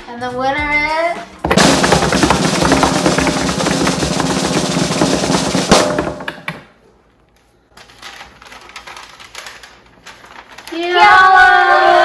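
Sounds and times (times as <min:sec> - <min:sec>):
snare drum roll: 0:01.4 - 0:06.5.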